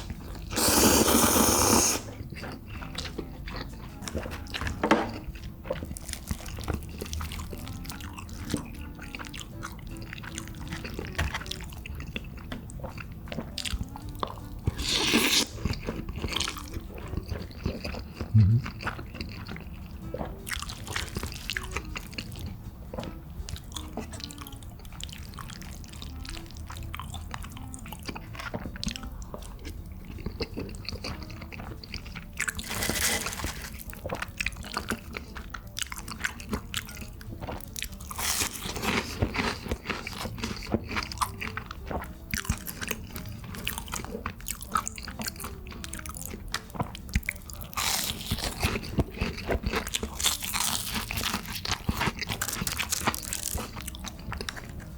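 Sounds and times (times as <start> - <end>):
wet mouth sounds: 0.0 - 4.5, 12.1 - 22.4
person chewing and biting: 0.0 - 54.9.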